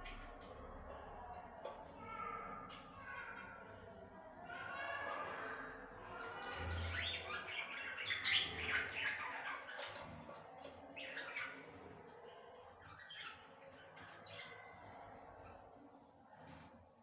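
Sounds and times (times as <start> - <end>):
budgerigars chirping and warbling: 6.6 - 10.1.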